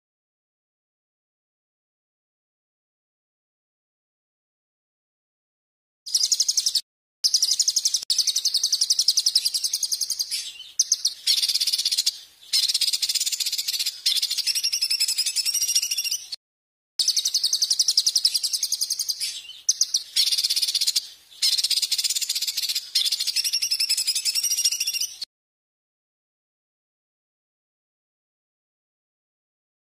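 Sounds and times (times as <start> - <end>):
songbird trilling: 6.1 - 16.4, 17.0 - 25.2.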